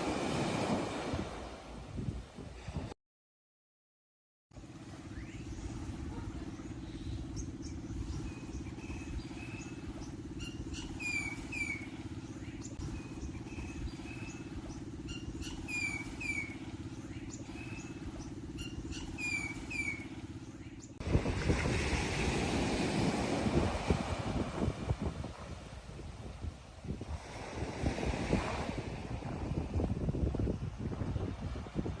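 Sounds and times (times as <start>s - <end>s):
low pulsing motor hum: 4.6s - 28.0s
bird chirping: 10.4s - 11.8s.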